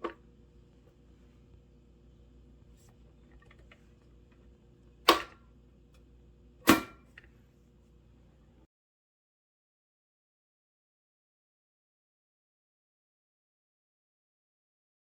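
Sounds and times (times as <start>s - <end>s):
faint steady hum: 0.0s - 8.7s.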